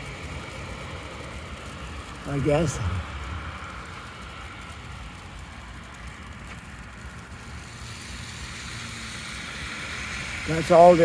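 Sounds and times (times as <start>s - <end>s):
vehicles rumbling past: 0.0s - 11.0s
tyre hiss: 7.1s - 11.0s.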